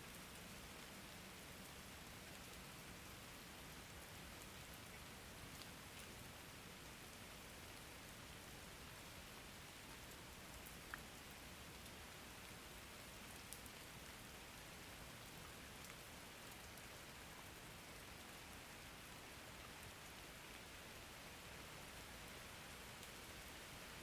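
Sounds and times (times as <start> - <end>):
faint steady rain: 0.0 - 24.0.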